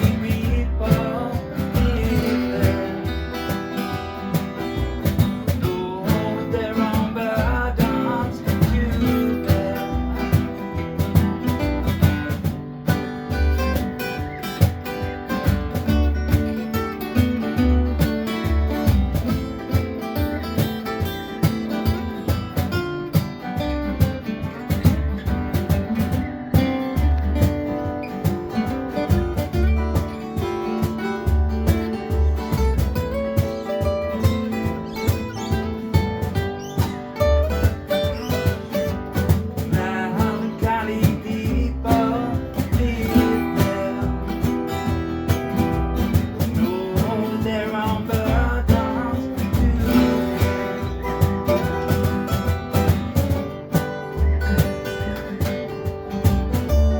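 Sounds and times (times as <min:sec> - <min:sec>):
country band music: 0:00.0 - 0:56.9.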